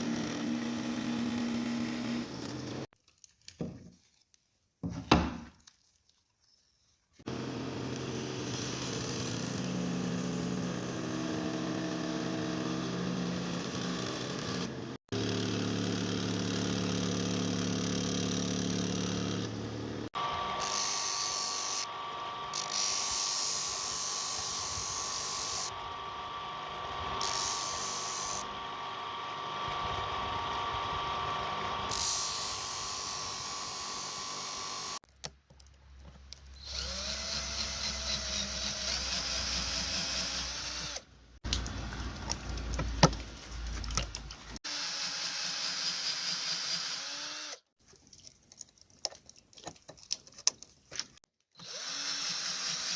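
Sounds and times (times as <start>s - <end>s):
power tool motor hum: 0.0s - 2.9s, 7.3s - 35.0s, 36.6s - 41.1s, 44.6s - 47.7s, 51.6s - 52.9s
high-pitched power tool whine: 7.3s - 35.0s, 36.6s - 41.1s, 44.6s - 47.6s, 51.6s - 52.9s.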